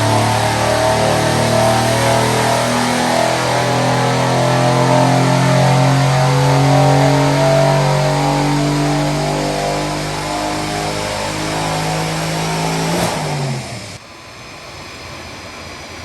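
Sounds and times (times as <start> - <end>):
car engine revving under load: 0.0 - 14.0.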